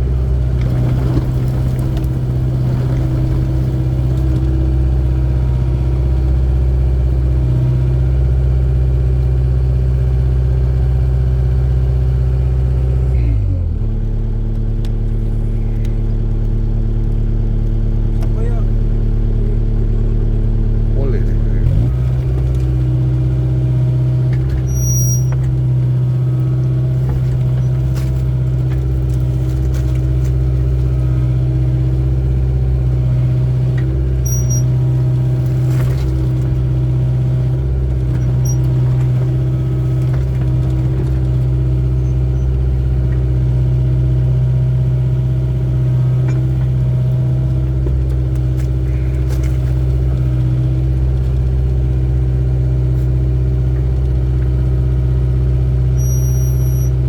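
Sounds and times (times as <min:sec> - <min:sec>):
excavator diesel engine running: 0:00.0 - 0:57.0
short high machine squeaks: 0:24.6 - 0:25.5, 0:34.2 - 0:34.8, 0:38.2 - 0:38.7, 0:42.0 - 0:42.5, 0:55.9 - 0:57.0.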